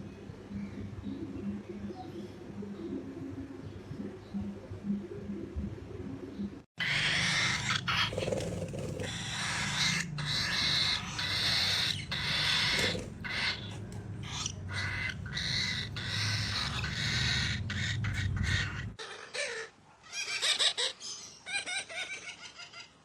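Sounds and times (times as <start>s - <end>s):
steady low hum: 0.0s - 19.0s
parrot screeching calls: 6.8s - 22.9s.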